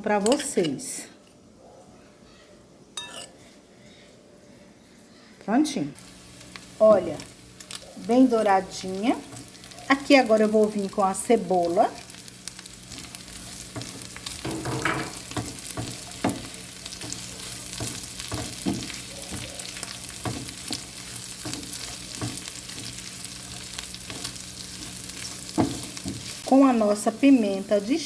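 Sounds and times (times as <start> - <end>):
food sizzling in a frying pan: 5.9 - 28.0.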